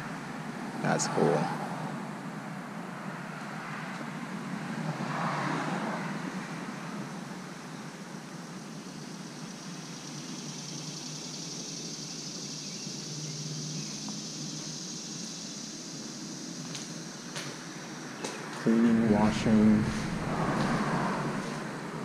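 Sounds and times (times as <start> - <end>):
road traffic noise: 0.0 - 22.0
high even hiss: 18.7 - 22.0.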